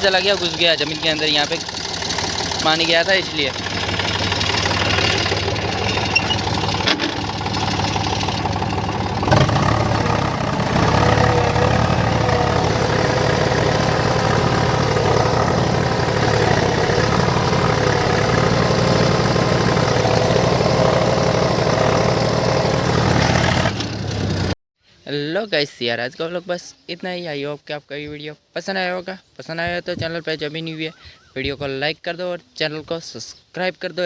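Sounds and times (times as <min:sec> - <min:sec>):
tractor engine running: 0:00.0 - 0:24.6.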